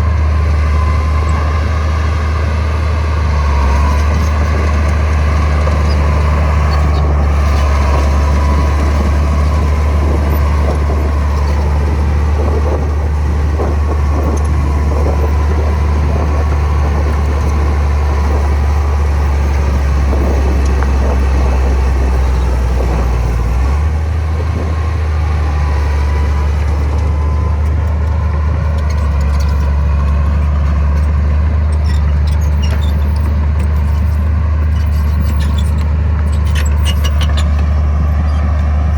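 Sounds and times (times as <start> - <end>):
diesel engine rumbling: 0.0 - 38.9.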